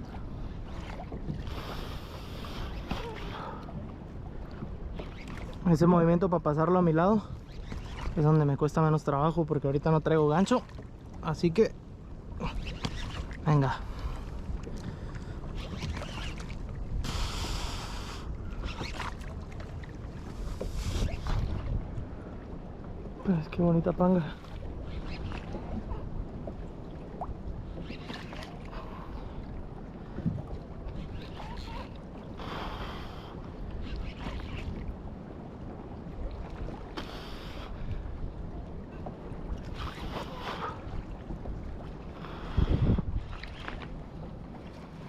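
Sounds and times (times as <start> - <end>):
water splashing against kayak: 0.0 - 45.0
wind rumble on microphone: 0.0 - 45.0
wind buffeting microphone: 11.8 - 23.4, 37.7 - 44.7.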